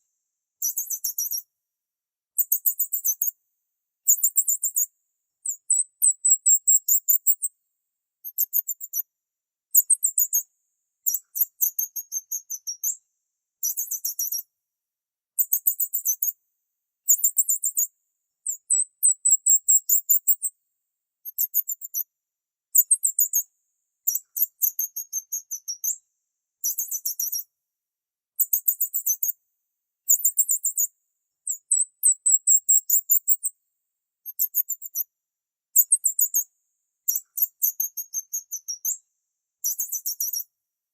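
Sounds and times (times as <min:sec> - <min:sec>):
small bird chirping: 0:00.6 - 0:01.5, 0:02.4 - 0:03.4, 0:04.0 - 0:07.5, 0:08.2 - 0:09.1, 0:09.7 - 0:13.0, 0:13.6 - 0:14.5, 0:15.4 - 0:16.4, 0:17.0 - 0:20.6, 0:21.2 - 0:22.1, 0:22.7 - 0:26.0, 0:26.6 - 0:27.5, 0:28.4 - 0:29.4, 0:30.0 - 0:33.6, 0:34.2 - 0:35.1, 0:35.7 - 0:39.0, 0:39.6 - 0:40.5.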